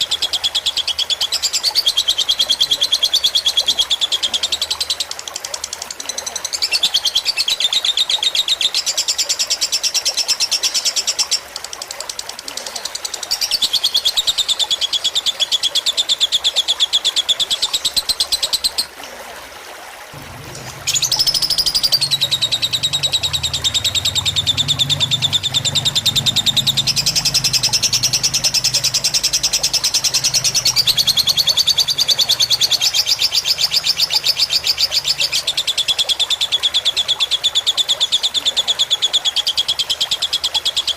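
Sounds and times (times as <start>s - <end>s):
trickling water: 0.0s - 40.9s
lovebird chattering trills: 20.4s - 35.7s.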